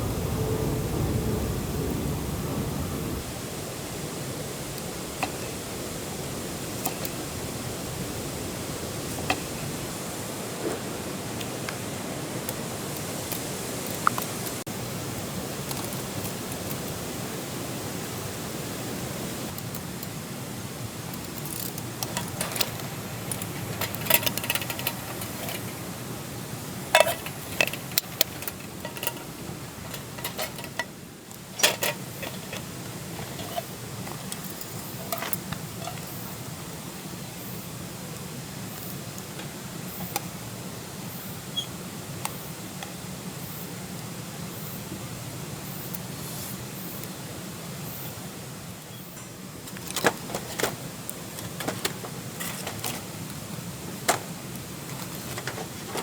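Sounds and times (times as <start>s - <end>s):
steady hiss: 0.0s - 56.0s
light clicks and clinks: 21.2s - 25.8s, 26.9s - 36.2s.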